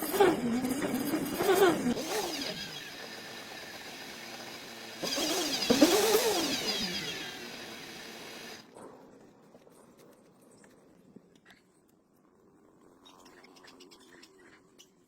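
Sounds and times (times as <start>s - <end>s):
car engine revving: 5.0s - 7.9s.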